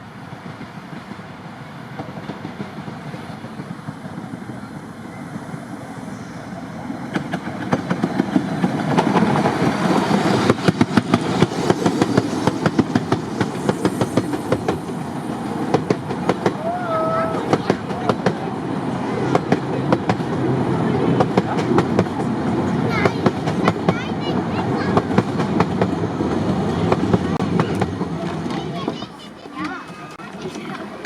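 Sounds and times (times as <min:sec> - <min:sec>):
miniature train rumble: 0:00.0 - 0:31.0
wheels clicking over rail joints: 0:07.0 - 0:18.5, 0:26.8 - 0:31.0.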